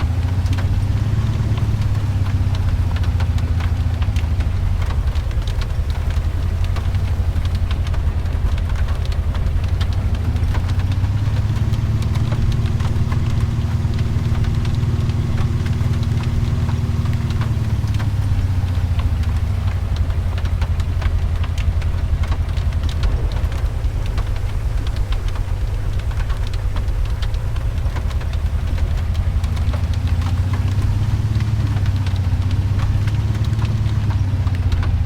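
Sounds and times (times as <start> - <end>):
car engine rumbling: 0.0 - 35.0
sharp ticks on vehicle: 0.0 - 35.0
steady engine note: 22.8 - 33.7.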